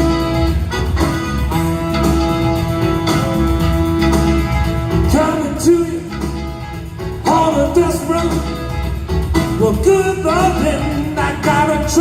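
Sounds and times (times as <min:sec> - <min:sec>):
live band playing soul music: 0:00.0 - 0:12.0
person singing: 0:05.1 - 0:06.4, 0:07.2 - 0:08.6, 0:09.6 - 0:12.0.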